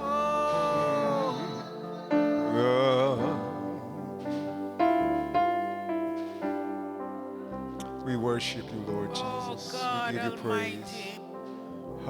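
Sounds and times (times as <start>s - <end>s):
person singing with vibrato: 0.0s - 5.4s, 7.8s - 12.0s
sustained keyboard chords: 0.0s - 12.0s.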